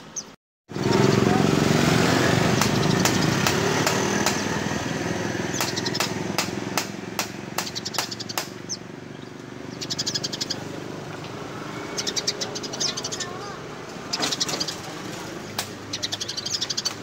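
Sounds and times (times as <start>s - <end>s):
sparrow chirping: 0.0s - 1.4s, 2.4s - 6.3s, 7.5s - 17.0s.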